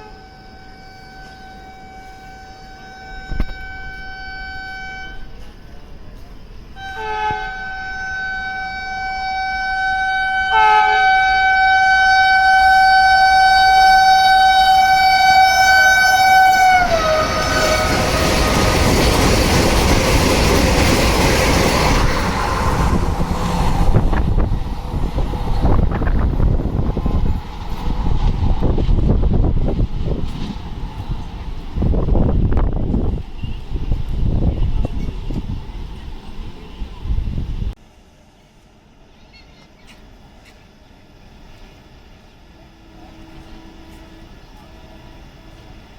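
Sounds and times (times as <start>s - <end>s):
train horn blast: 0.0s - 5.5s, 6.8s - 18.6s, 42.7s - 45.8s
train rushing by: 0.0s - 39.1s, 40.0s - 45.9s.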